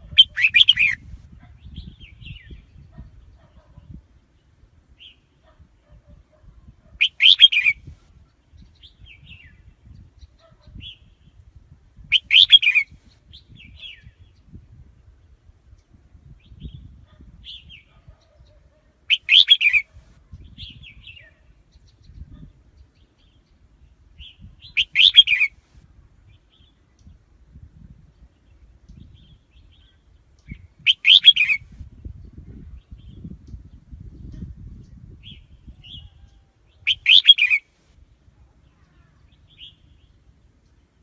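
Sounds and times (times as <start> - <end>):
bulbul singing loud phrases: 0.0 - 4.0, 6.9 - 7.9, 12.1 - 14.4, 16.4 - 23.4, 24.2 - 25.5, 28.6 - 31.7, 32.8 - 37.6
soft bird chirps: 0.0 - 11.4, 16.5 - 25.5, 28.2 - 37.6.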